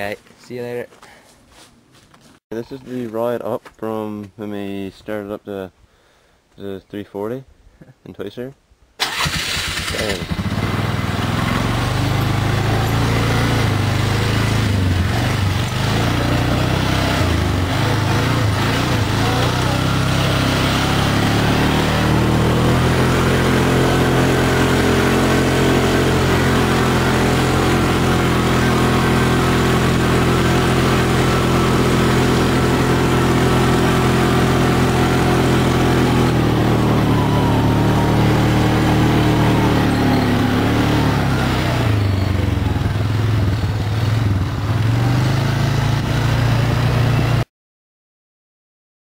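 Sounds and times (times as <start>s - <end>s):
snowmobile engine running: 10.1s - 47.4s.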